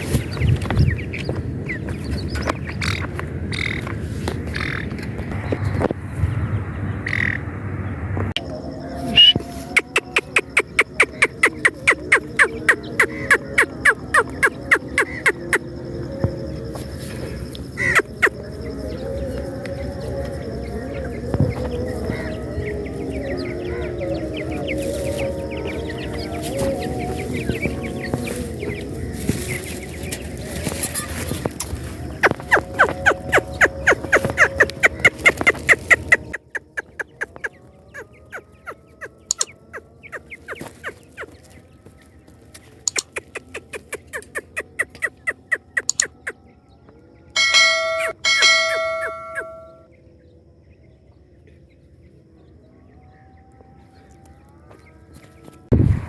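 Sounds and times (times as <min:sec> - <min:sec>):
bird chicks peeping: 0:00.0 - 0:07.5, 0:08.4 - 0:55.8
bird calling sharp falling notes: 0:47.6 - 0:49.7.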